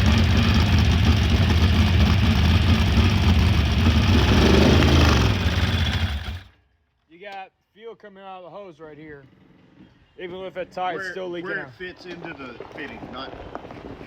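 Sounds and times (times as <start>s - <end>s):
race engine idling loudly: 0.0s - 6.5s.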